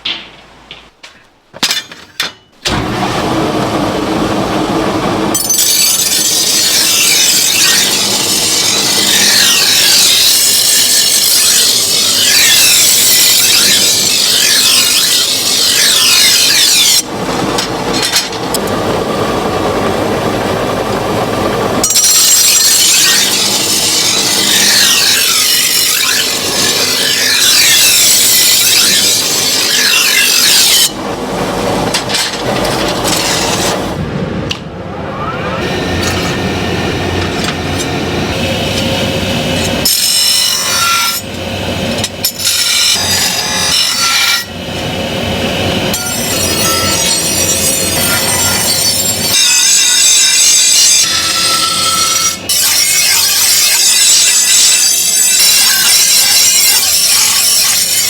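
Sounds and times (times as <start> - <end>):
power tool high squeal: 5.4 - 17.0, 21.8 - 31.0, 45.9 - 58.0.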